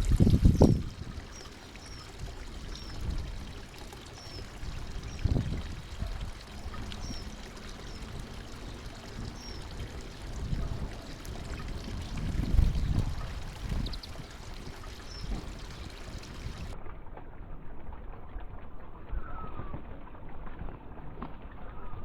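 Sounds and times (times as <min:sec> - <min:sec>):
songbirds chirping: 0:00.0 - 0:16.8.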